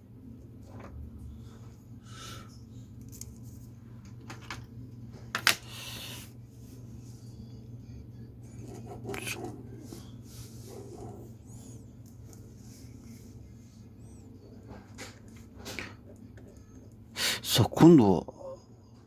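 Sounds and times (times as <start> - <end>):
drawing on paper: 8.5 - 11.5.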